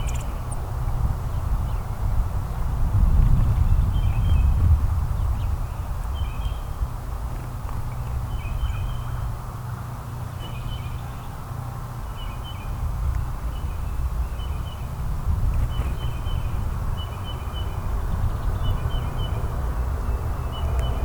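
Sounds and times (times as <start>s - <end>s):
small bird chirping: 0.0s - 0.6s.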